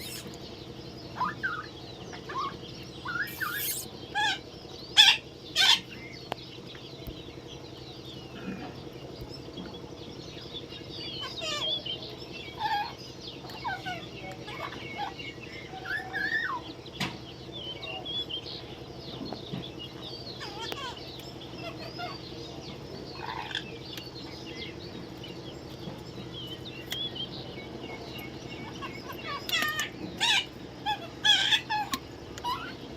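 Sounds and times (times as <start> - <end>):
parrots chattering: 0.0 - 0.5, 1.1 - 6.0, 10.9 - 16.8, 17.6 - 32.9
parrot screech: 3.1 - 4.3.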